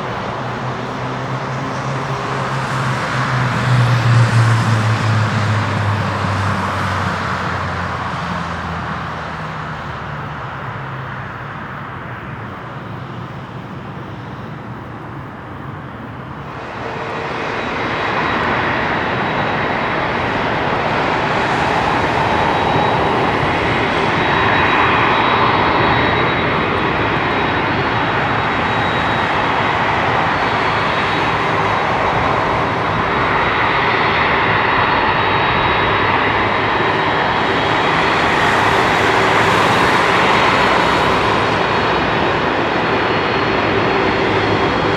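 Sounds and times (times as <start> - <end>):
jet engines low rumble: 0.0 - 44.9
jet engines whine and roar: 0.0 - 44.9.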